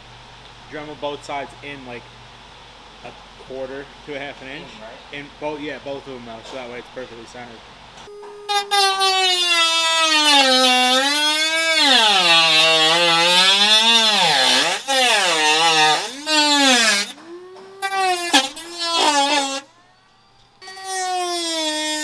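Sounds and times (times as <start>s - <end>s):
rotary tool whining while cutting: 8.3s - 19.7s, 20.6s - 22.0s.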